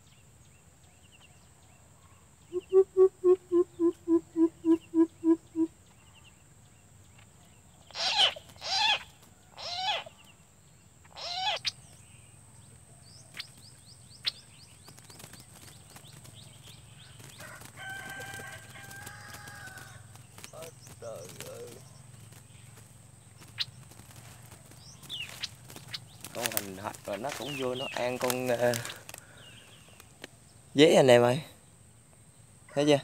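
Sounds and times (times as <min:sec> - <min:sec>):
faint bird chirps: 0:00.0 - 0:33.0
bird deep hooting: 0:02.5 - 0:05.8
loud harsh bird calls: 0:07.7 - 0:10.4, 0:11.0 - 0:31.7.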